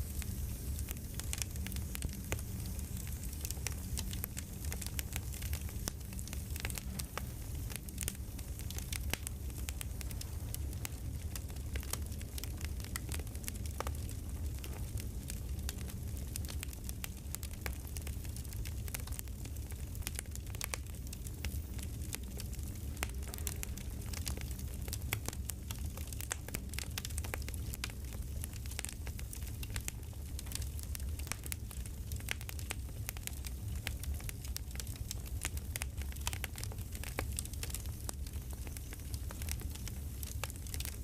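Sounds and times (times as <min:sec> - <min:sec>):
campfire crackling: 0:00.0 - 0:41.0.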